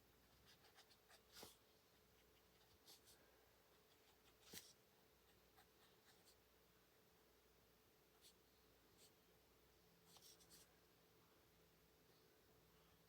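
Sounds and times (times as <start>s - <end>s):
marker scratching on paper: 0.2s - 1.6s, 3.8s - 6.4s, 10.1s - 10.7s.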